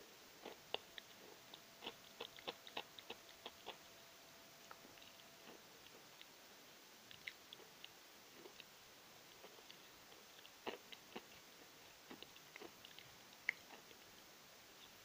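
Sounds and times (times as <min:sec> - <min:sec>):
person chewing chalk: 0:00.4 - 0:03.8, 0:07.1 - 0:08.7, 0:09.3 - 0:14.0.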